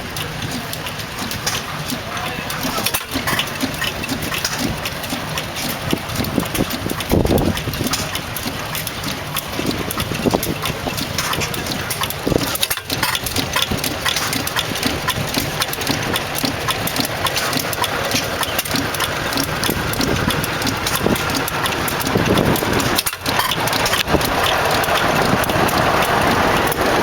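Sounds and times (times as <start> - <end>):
hit-and-miss engine running: 0.0 - 27.0.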